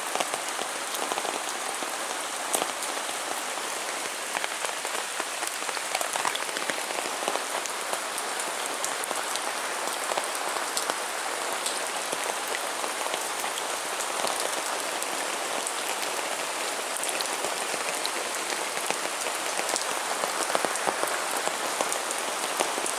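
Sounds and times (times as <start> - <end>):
heavy rain: 0.0 - 22.9
raindrops pattering on hard surfaces: 0.0 - 22.9.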